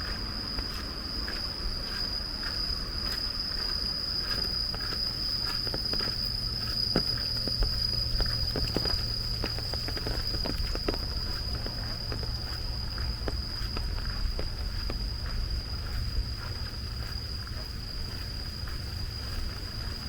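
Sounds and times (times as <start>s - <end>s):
footsteps: 0.0s - 20.0s
high-pitched insect whine: 0.0s - 20.0s
steady low rumble: 0.0s - 20.0s
rain drips and taps: 6.9s - 12.4s.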